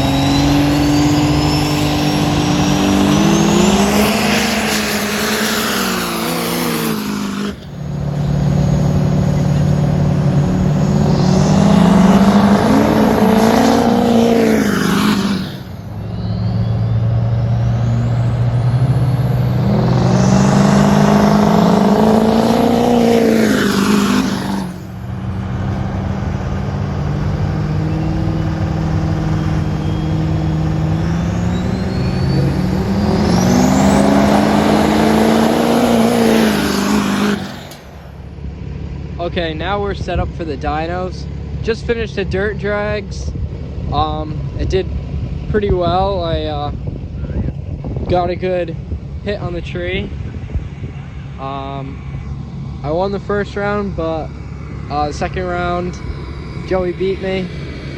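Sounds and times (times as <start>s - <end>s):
thin rising whistle: 0.0s - 25.0s, 27.6s - 38.4s
truck engines accelerating hard: 0.0s - 57.9s.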